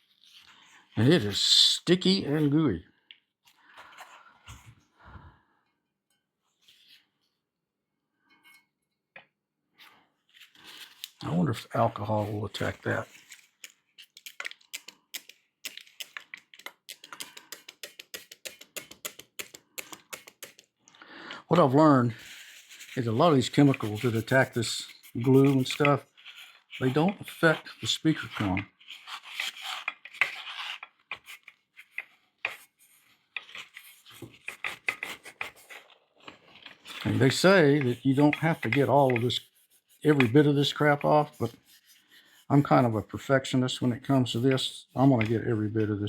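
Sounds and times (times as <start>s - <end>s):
quick scrubbing strokes: 22.2s - 30.8s, 36.9s - 43.0s.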